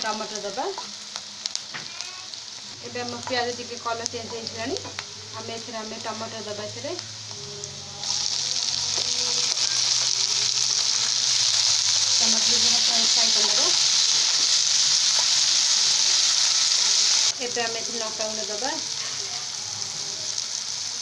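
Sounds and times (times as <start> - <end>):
tomatoes sizzling in hot oil: 0.0 - 21.0.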